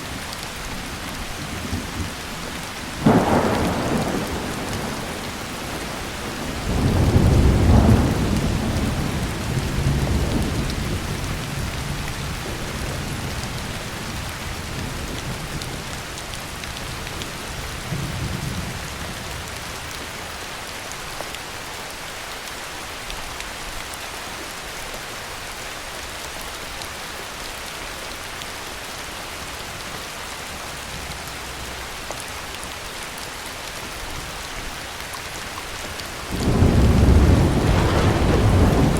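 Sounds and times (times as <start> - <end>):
heavy rain falling: 0.0 - 38.9
rolling thunder: 3.0 - 15.3, 36.2 - 38.9.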